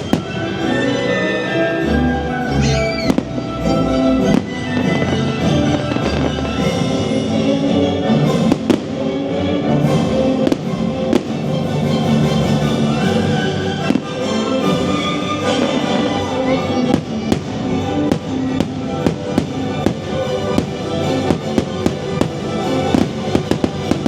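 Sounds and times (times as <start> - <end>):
fireworks bangs: 0.0 - 0.8, 2.7 - 3.6, 4.2 - 7.4, 8.3 - 9.3, 10.0 - 12.2, 13.6 - 24.0
orchestral holiday music: 0.0 - 24.0.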